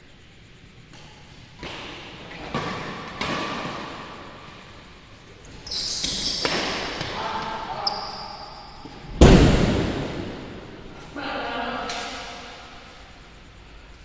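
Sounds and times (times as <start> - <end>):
shoe squeaks: 4.6 - 9.2
shuttlecock hits echoing: 9.1 - 11.2.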